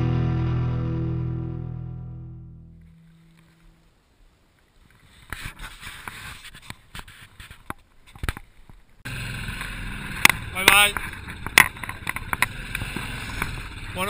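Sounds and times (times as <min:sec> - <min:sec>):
guitar music: 0:00.0 - 0:03.8
motorcycle engine running: 0:09.1 - 0:14.0.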